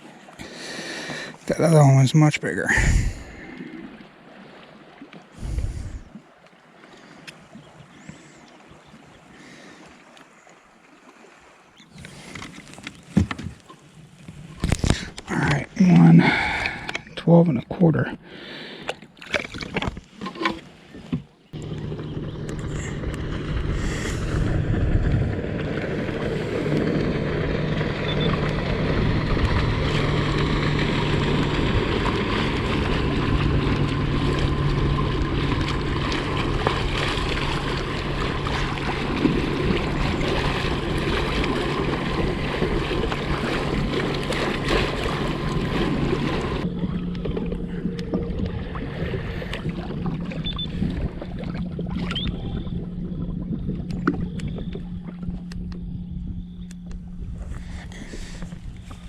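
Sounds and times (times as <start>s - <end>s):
water rushing: 0.0s - 18.0s, 21.5s - 56.2s
wind: 0.0s - 59.0s
low hum: 21.5s - 59.0s.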